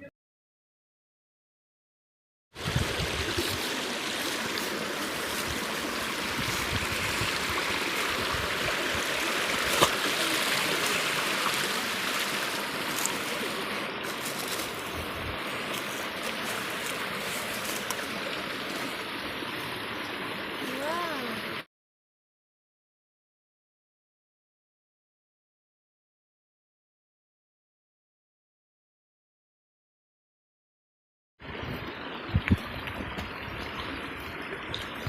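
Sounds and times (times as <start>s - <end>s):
stream water rushing: 2.6s - 21.7s, 31.4s - 35.0s.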